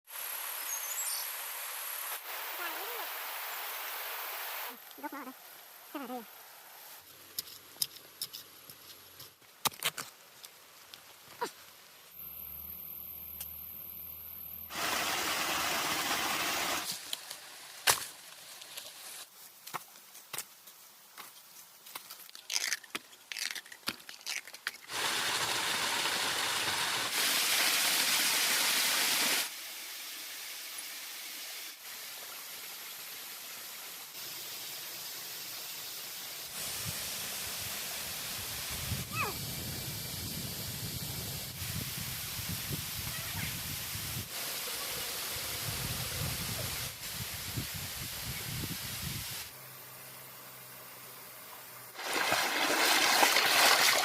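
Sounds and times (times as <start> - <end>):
steady outdoor hiss: 0.1 - 54.0
sharp crunches and cracks: 7.3 - 11.6, 21.2 - 24.9.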